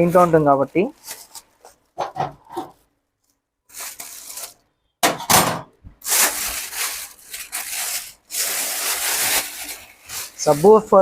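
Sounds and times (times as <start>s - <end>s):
packaging rubbing and scraping: 0.2s - 2.9s, 3.7s - 4.6s, 6.0s - 11.0s.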